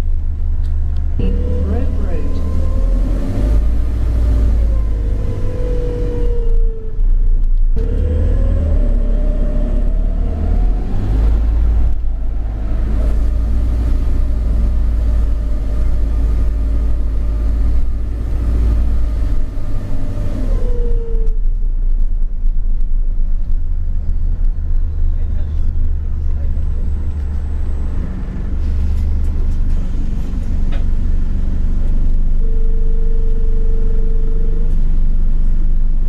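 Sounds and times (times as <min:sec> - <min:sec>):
bus engine deep rumble: 0:00.0 - 0:36.0.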